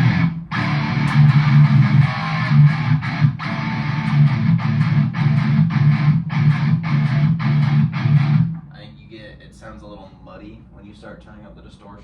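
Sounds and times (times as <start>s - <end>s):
distorted electric guitar riff: 0.0s - 8.7s.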